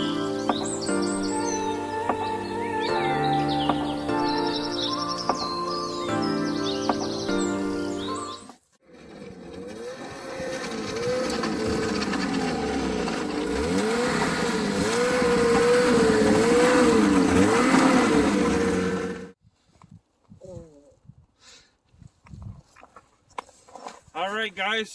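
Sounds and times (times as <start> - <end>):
snowmobile engine revving: 8.8 - 19.4.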